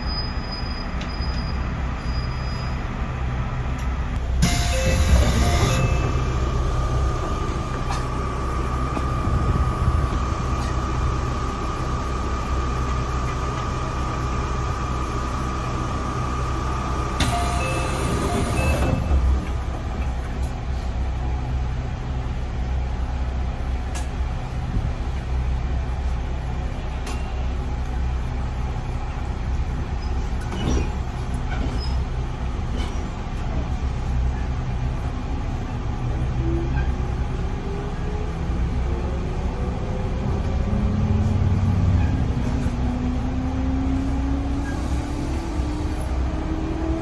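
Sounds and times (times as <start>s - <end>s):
train wheels rumbling on rail: 0.0s - 47.0s
train motor tone rising: 4.4s - 13.0s, 14.0s - 20.1s.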